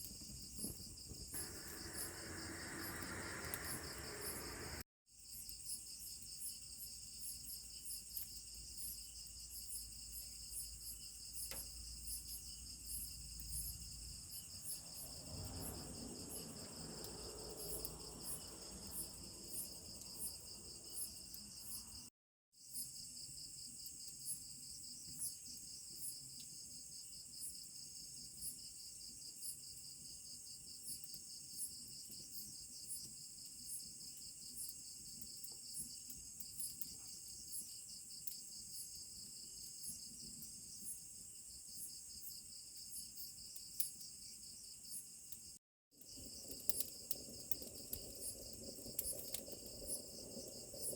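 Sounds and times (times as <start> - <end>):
crickets and insects trilling: 0.1 - 4.8, 10.6 - 22.0, 46.0 - 50.9.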